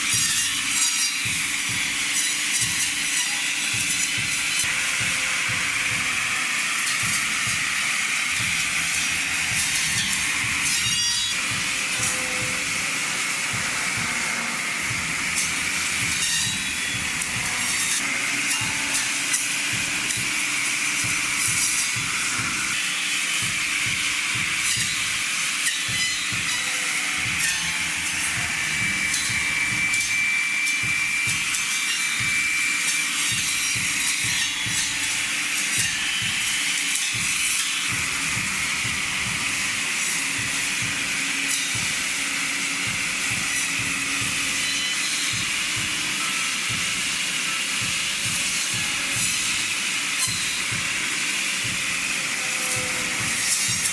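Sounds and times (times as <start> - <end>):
heavy machinery running: 0.0 - 53.9.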